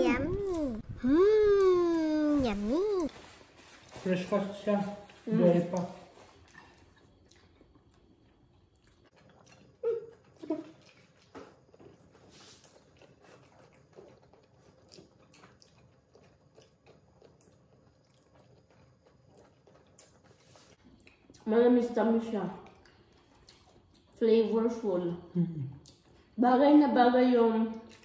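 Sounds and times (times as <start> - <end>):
chewing and mouth sounds: 0.0 - 3.1, 5.1 - 21.5, 22.5 - 24.2, 25.5 - 26.4, 27.7 - 28.0.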